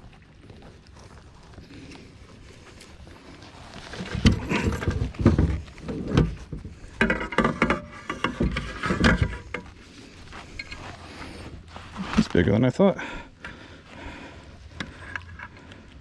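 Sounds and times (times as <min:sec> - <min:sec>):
knocks and scrapes on kayak: 0:03.3 - 0:12.4.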